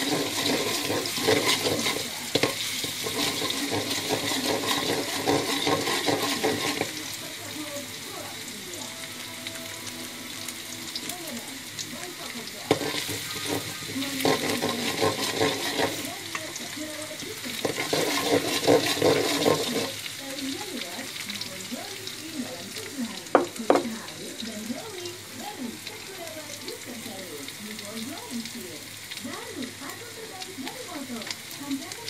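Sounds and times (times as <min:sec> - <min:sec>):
spatula knocking on wok: 0:00.0 - 0:07.0, 0:12.6 - 0:16.1, 0:17.6 - 0:19.9, 0:23.3 - 0:24.0
metal spatula scraping wok: 0:00.0 - 0:07.3, 0:12.6 - 0:16.7, 0:17.5 - 0:20.0
garlic sizzling in hot oil: 0:00.0 - 0:32.0.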